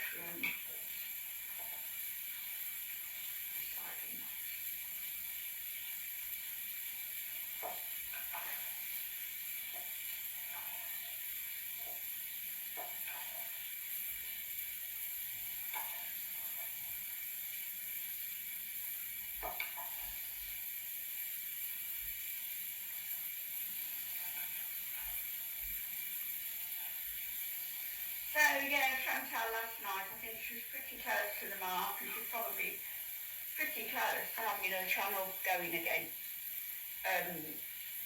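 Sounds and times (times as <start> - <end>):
food sizzling in a pan: 0.0 - 38.0.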